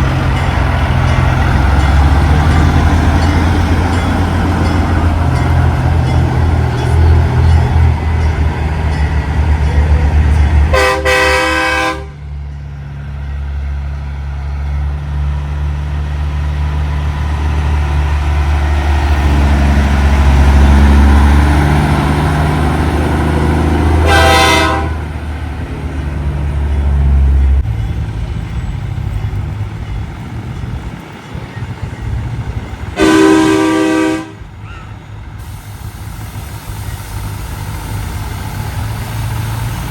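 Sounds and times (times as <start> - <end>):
diesel trucks rumbling past: 0.0 - 39.9
truck air horn blasting: 10.7 - 12.2, 24.0 - 25.0, 33.0 - 34.4.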